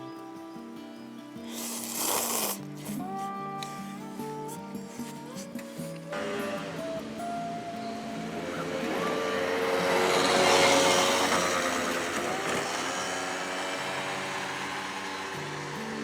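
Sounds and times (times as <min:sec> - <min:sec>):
guitar music: 0:00.0 - 0:01.9, 0:02.5 - 0:16.0
vehicle passing by: 0:06.2 - 0:16.0.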